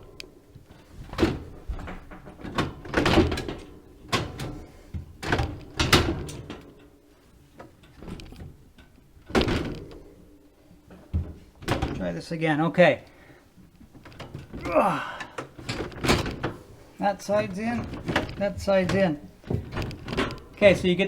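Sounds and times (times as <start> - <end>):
plastic drawer parts knocking: 17.3 - 21.0.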